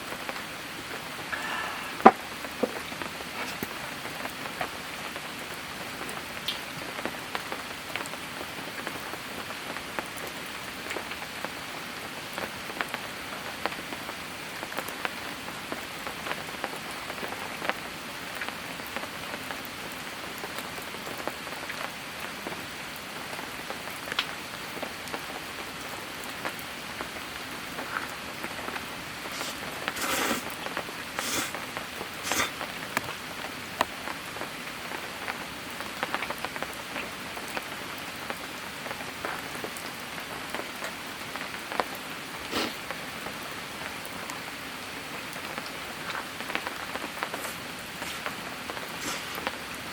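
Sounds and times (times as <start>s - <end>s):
steady rain: 0.0s - 49.9s
raindrop taps: 1.3s - 4.7s.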